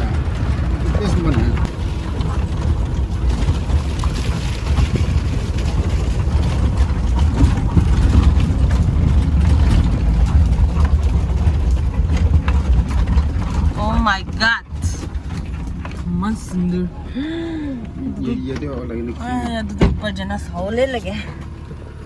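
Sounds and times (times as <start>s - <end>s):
small knocks and rattles: 0.0s - 16.2s
vehicle engine and road rumble: 0.0s - 22.0s.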